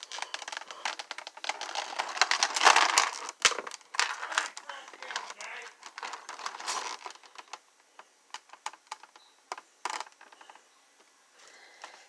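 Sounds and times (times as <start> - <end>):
plastic packaging rustling: 0.0 - 7.6.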